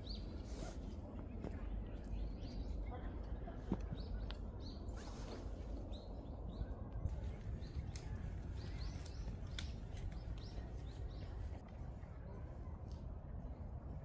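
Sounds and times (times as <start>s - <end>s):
low background rumble: 0.0s - 14.0s
small birds chirping: 1.6s - 11.6s.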